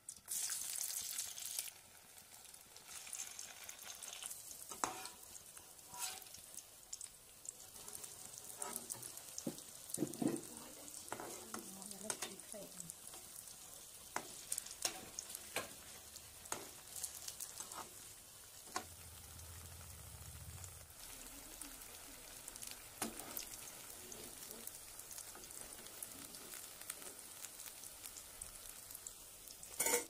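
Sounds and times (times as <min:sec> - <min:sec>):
slices sizzling in oil: 0:00.0 - 0:30.0
spatula tapping in pan: 0:08.6 - 0:12.4.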